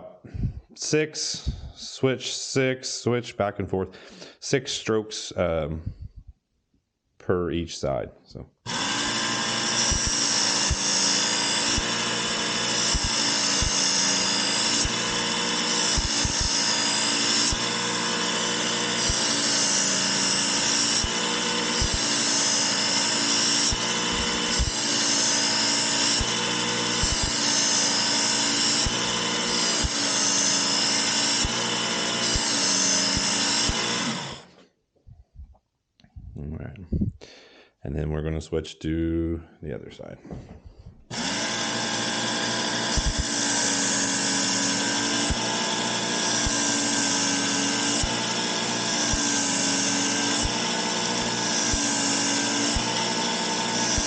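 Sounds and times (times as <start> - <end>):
belt sharpener motor: 8.7 - 34.6, 41.1 - 54.0
steel grinding on belt: 8.7 - 34.6, 41.1 - 54.0.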